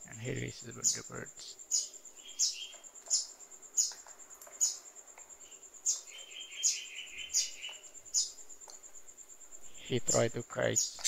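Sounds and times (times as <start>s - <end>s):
bird chirping: 0.1s - 11.0s
rapid pulsing bird call: 5.4s - 8.4s.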